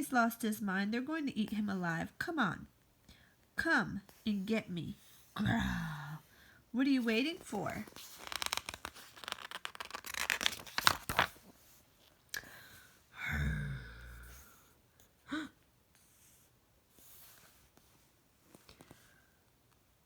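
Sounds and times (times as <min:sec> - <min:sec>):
book pages rustling: 0:07.0 - 0:12.2, 0:17.4 - 0:19.2.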